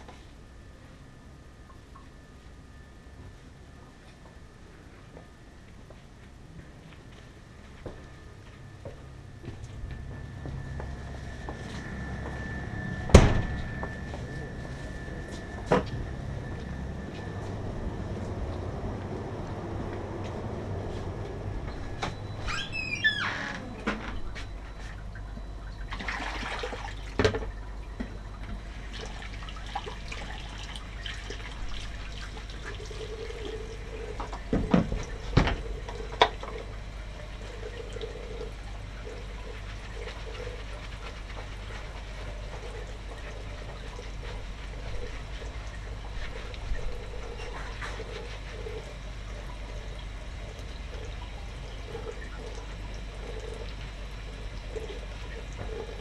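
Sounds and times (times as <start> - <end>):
machine hum with hissing rush: 0.0 - 56.0
wavering mid-pitched tone: 9.6 - 19.0.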